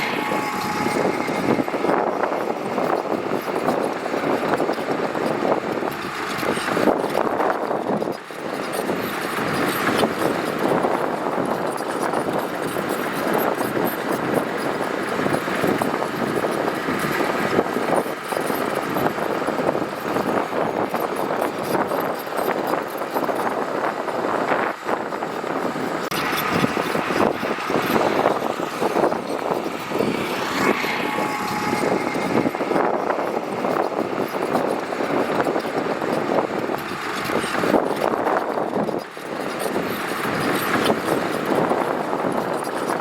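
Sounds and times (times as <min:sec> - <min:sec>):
earthmoving machinery working gravel: 0:00.0 - 0:43.0.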